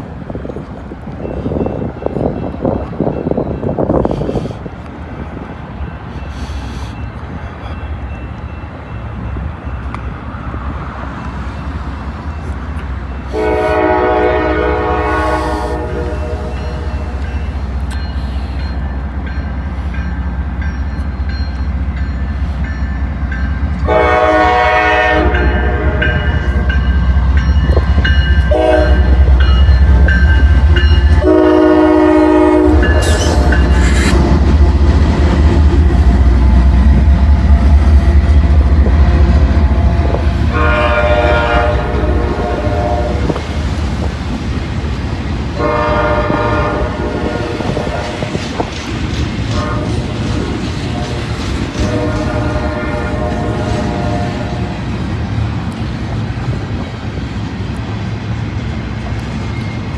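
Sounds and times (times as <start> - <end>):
train engines and wheels rumbling: 0.0 - 59.9
train horn blasts: 13.3 - 17.3, 23.8 - 26.8, 28.3 - 29.4, 30.8 - 34.4, 39.1 - 43.4, 45.6 - 48.4, 49.5 - 54.9
wheels clacking over rail joints: 32.0 - 59.9.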